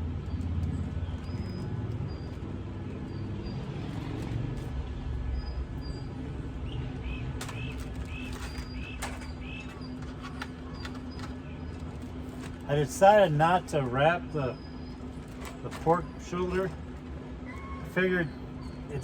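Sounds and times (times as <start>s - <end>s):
low hum and rumble: 0.0s - 19.0s
bird chirping: 5.3s - 11.8s.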